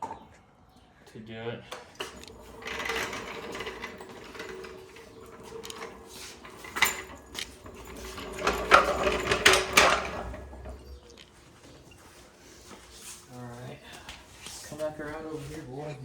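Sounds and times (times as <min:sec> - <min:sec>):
metal parts and tools clattering: 0:01.9 - 0:13.0.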